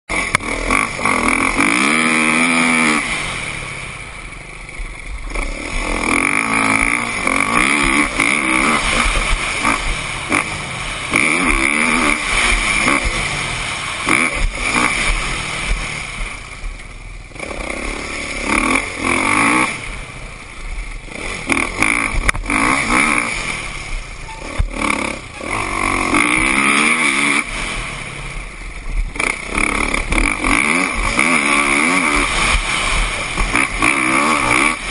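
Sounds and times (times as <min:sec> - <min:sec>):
motocross bike engine revving: 0:00.1 - 0:34.9.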